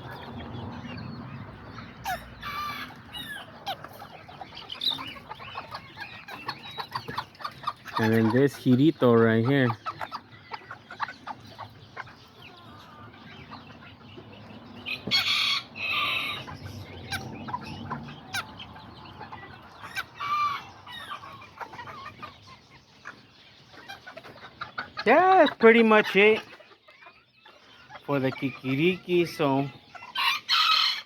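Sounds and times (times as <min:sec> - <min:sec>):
chickens clucking: 0:00.0 - 0:31.0
rooster crowing: 0:14.9 - 0:16.5.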